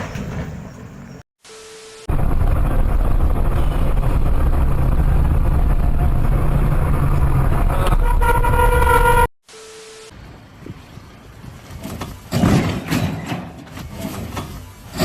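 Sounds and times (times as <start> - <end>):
road vehicle rumbling: 2.1 - 9.3, 10.2 - 15.0
vehicle horn: 7.7 - 9.3.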